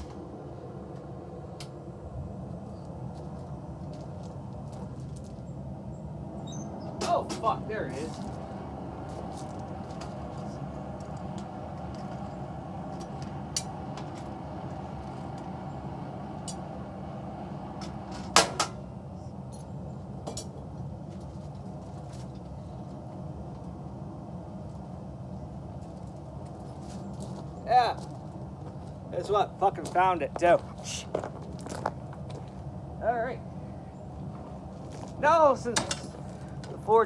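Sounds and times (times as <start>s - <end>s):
forge running: 0.0s - 19.2s, 33.3s - 37.0s.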